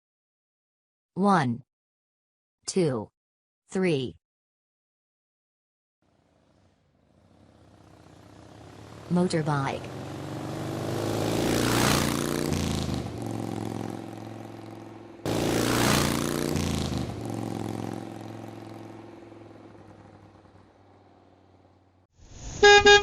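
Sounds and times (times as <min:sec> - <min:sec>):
motorcycle engine revving: 0:06.0 - 0:22.1.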